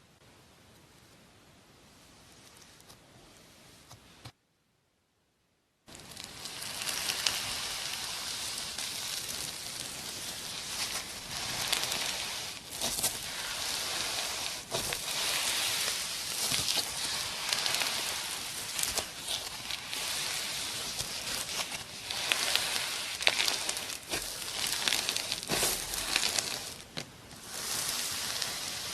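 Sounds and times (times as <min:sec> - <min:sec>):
slime crackling and popping: 0:05.9 - 0:28.9.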